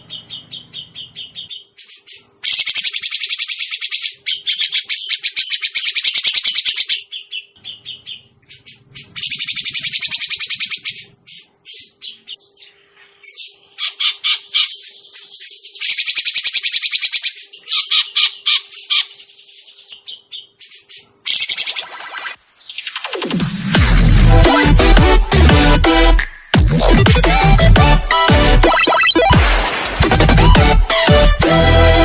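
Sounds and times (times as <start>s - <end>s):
bulbul harsh chattering calls: 0.1s - 12.4s, 13.3s - 19.3s.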